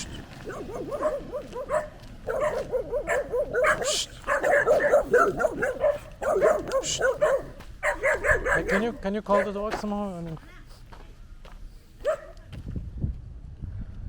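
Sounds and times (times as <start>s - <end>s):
dog barking rapidly: 0.0s - 9.9s, 12.0s - 12.4s.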